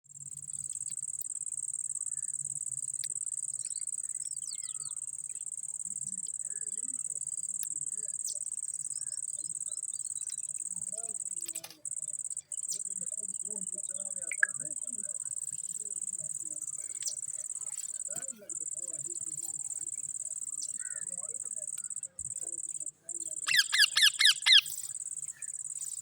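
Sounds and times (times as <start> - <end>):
high-pitched insect trill: 0.1 - 26.0
faint bird chirps and squeaks: 3.6 - 5.4, 14.3 - 14.7, 23.2 - 26.0.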